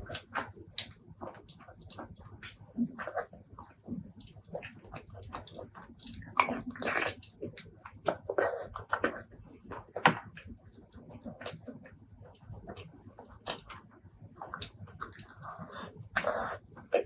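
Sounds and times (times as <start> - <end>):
wet chewing and mouth smacking: 0.1 - 17.0.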